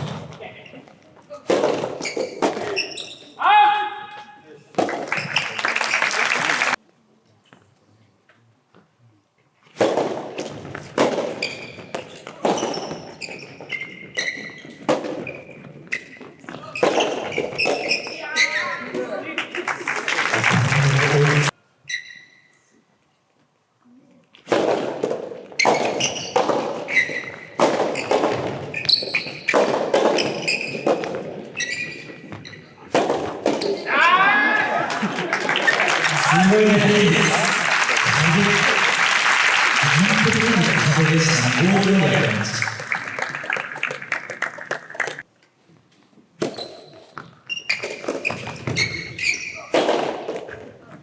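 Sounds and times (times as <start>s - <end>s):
shoes squeaking on floor: 0.0s - 3.4s, 5.1s - 5.6s, 10.7s - 18.9s, 21.8s - 22.8s, 25.5s - 32.9s, 33.5s - 33.9s, 46.4s - 49.8s
scattered clapping: 4.8s - 6.8s, 19.3s - 21.5s, 34.9s - 45.2s
ball striking court floor: 24.5s - 31.3s
racket striking tennis ball: 32.9s - 33.8s.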